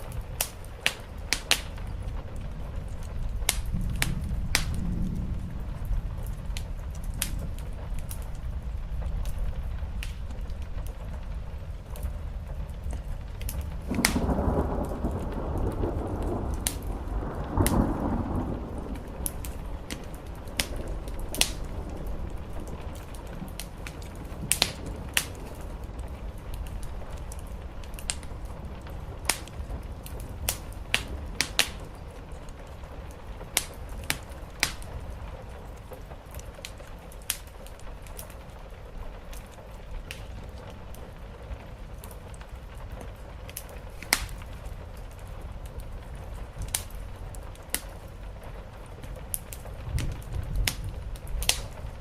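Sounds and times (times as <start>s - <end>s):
steady rain: 0.0s - 52.0s
thunder rumbling: 0.0s - 52.0s
wood fire crackling: 0.0s - 52.0s.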